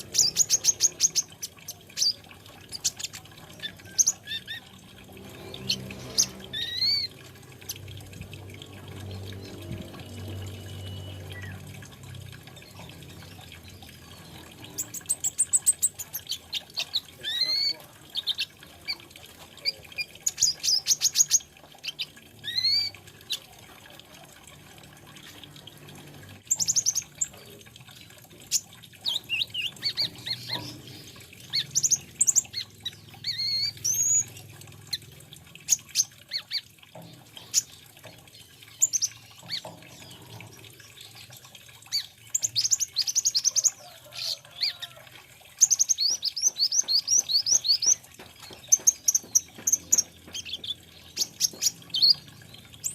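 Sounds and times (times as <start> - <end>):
bird singing chirps and trills: 0.0 - 24.2, 25.0 - 52.9.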